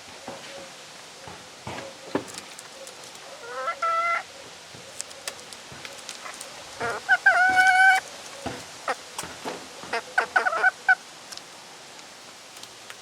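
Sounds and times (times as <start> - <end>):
chickens calling: 1.7 - 11.6.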